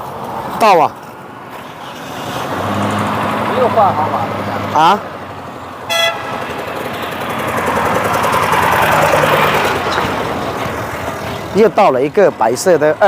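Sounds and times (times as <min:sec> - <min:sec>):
vehicle driving past: 0:01.6 - 0:11.7
car horn toot: 0:05.9 - 0:06.4.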